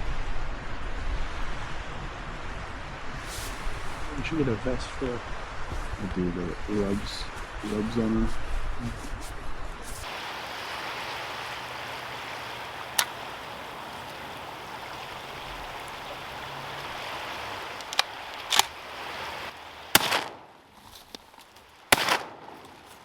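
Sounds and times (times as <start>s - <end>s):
light clicks: 12.9s - 13.2s, 17.8s - 18.8s
shotgun shot: 19.9s - 20.5s, 21.9s - 22.7s.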